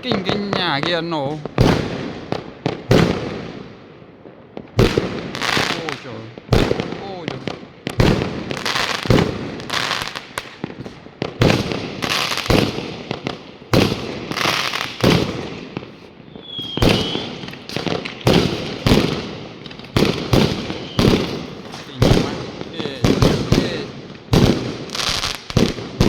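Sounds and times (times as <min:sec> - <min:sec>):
fireworks bangs: 0:00.0 - 0:26.0
firework whistle: 0:16.3 - 0:17.8, 0:20.7 - 0:21.4.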